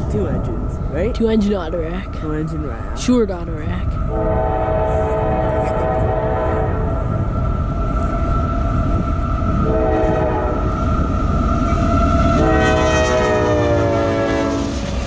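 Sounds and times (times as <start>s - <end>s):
train rumble: 0.0s - 15.0s
locomotive air horn: 4.1s - 6.9s, 9.6s - 10.7s, 12.2s - 15.0s.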